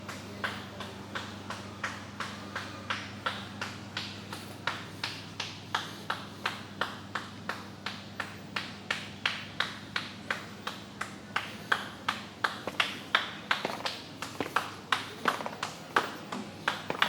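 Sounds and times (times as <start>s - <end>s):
footsteps tapping: 12.1s - 17.0s.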